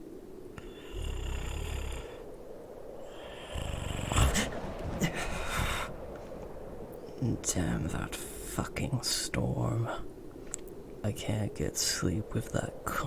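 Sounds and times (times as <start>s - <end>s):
man snoring: 0.6s - 2.2s, 3.2s - 4.5s
noisy breathing: 0.6s - 6.4s.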